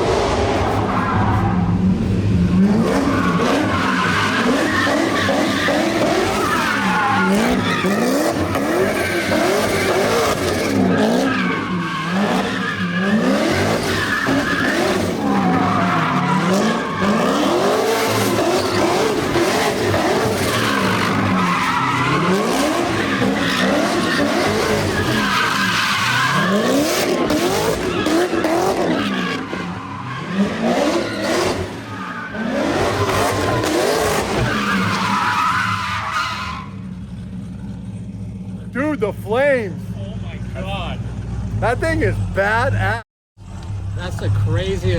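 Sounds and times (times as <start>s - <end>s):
car engine revving: 0.0s - 36.0s
tyres squealing: 2.9s - 36.8s.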